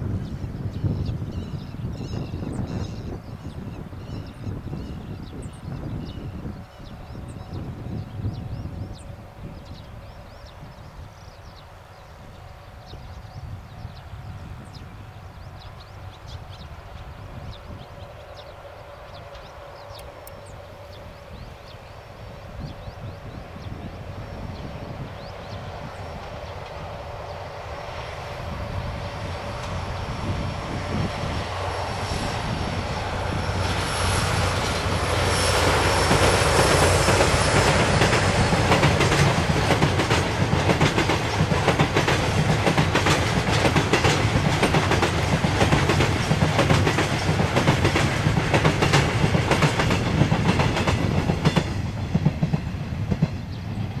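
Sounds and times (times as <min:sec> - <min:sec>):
freight train rolling by: 0:00.0 - 0:54.0
wheels clicking over rail joints: 0:36.1 - 0:53.4.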